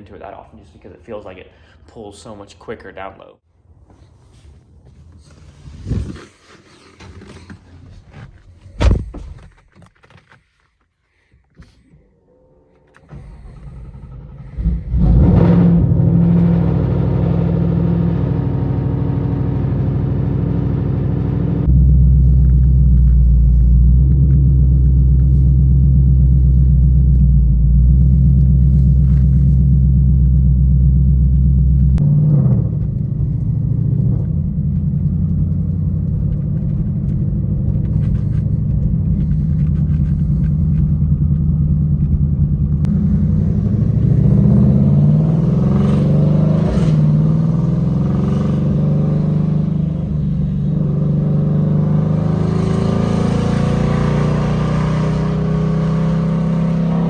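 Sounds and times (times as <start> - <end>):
car engine and exhaust revving: 12.3 - 57.0.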